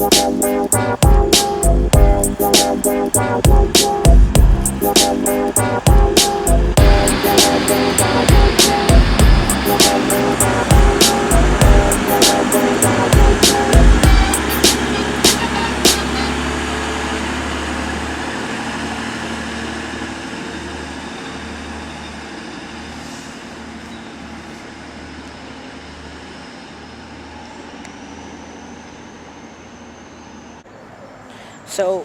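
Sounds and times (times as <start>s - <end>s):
low pulsing throb: 0.0s - 16.4s
train running: 0.0s - 30.6s.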